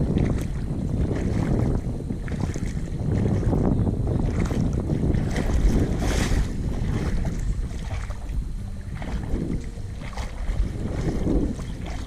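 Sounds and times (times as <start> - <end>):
water sloshing and splashing: 0.0 - 12.0
wind buffeting microphone: 0.0 - 12.0
large splash: 4.2 - 12.0.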